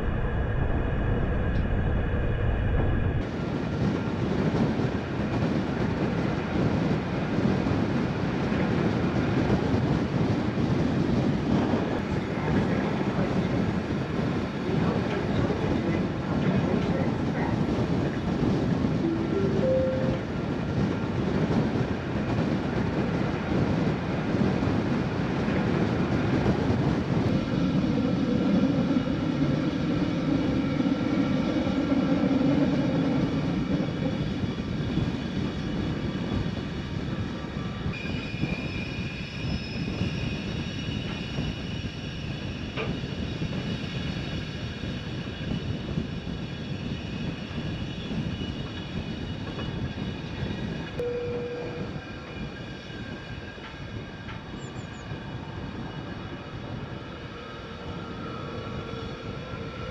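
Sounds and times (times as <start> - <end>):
train wheels rumbling on track: 0.0 - 59.9
thin high tone: 19.0 - 20.4.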